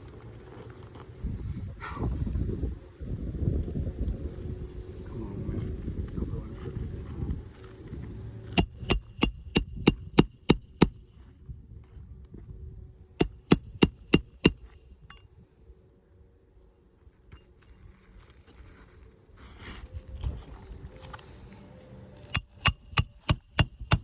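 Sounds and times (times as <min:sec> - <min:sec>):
hammer striking metal: 0:08.6 - 0:11.0, 0:13.2 - 0:14.8, 0:22.3 - 0:24.0.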